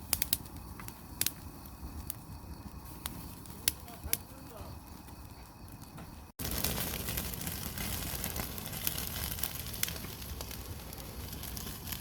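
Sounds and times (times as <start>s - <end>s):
burning wood crackling: 0.0s - 12.0s
meat sizzling on a grill: 6.4s - 12.0s.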